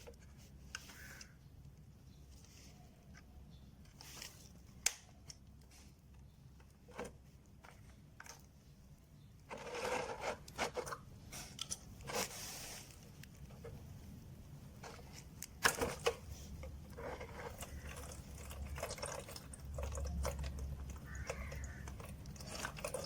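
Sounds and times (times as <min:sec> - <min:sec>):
scraping rustle: 0:09.5 - 0:14.0
handling clicks and knocks: 0:14.8 - 0:23.0.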